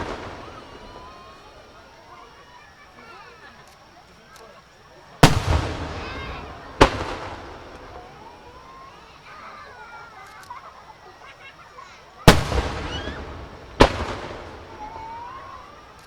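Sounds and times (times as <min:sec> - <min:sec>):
fireworks booming: 0:00.0 - 0:03.2, 0:05.1 - 0:11.0, 0:12.2 - 0:16.0
crowd voices: 0:00.0 - 0:16.0.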